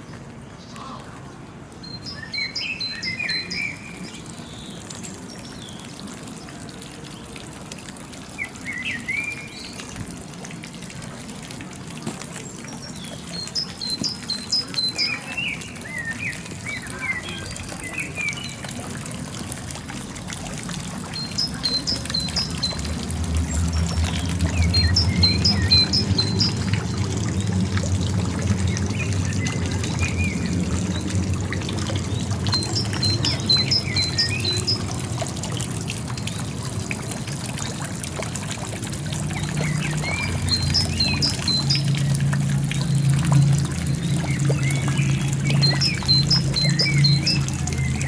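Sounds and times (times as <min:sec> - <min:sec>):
songbirds singing: 0:00.4 - 0:07.3, 0:12.4 - 0:18.9, 0:21.1 - 0:27.4, 0:28.3 - 0:35.3, 0:39.2 - 0:48.0.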